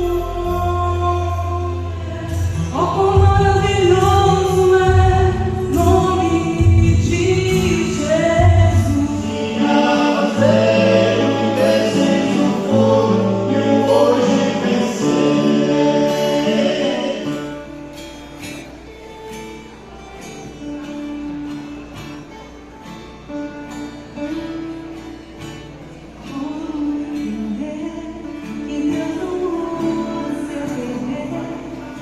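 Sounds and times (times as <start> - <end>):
choir singing: 2.1 - 17.9.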